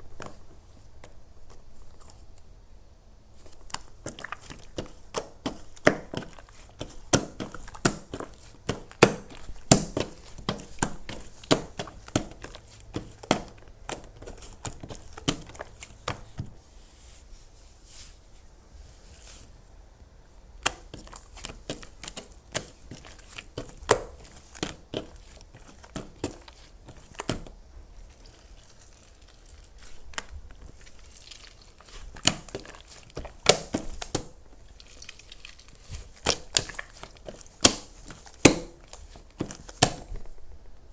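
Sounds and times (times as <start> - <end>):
crinkly object squeezed: 20.6 - 40.4.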